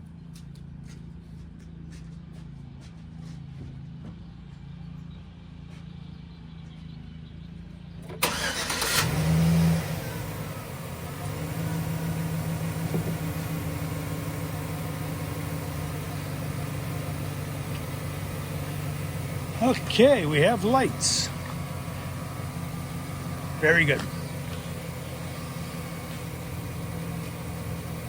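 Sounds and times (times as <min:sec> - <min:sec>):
starter cranking engine: 0:08.1 - 0:09.4
pickup engine revving and idling: 0:08.2 - 0:28.0.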